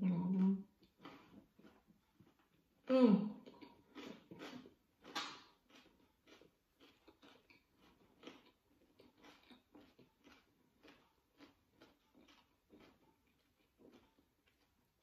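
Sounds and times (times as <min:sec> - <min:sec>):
close-mouthed chewing: 0:00.2 - 0:15.0.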